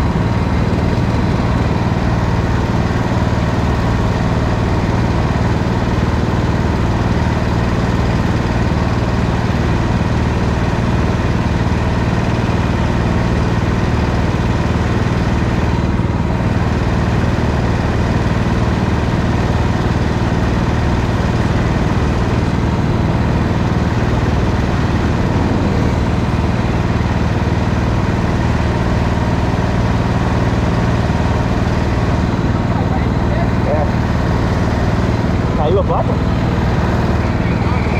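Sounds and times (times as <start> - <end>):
go-kart engine running: 0.0 - 37.9.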